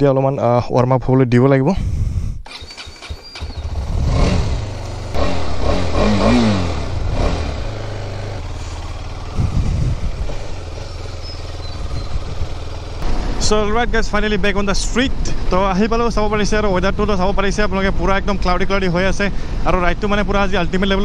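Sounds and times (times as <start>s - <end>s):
motorcycle engine revving and idling: 2.5s - 14.3s.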